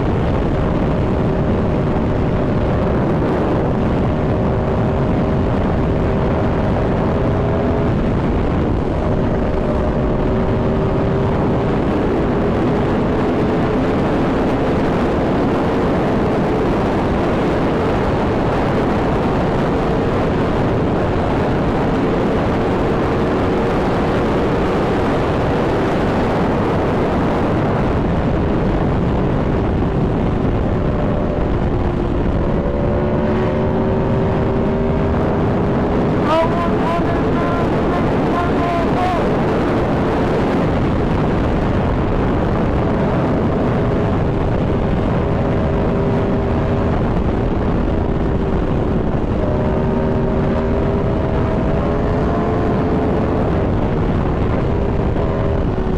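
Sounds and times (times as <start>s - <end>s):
wind rush: 0.0s - 55.9s.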